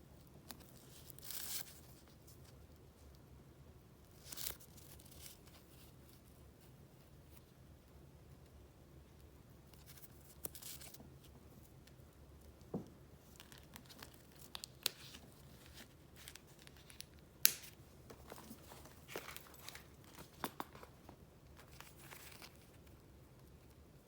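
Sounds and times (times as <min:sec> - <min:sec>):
paper rustling: 0:13.3 - 0:22.9.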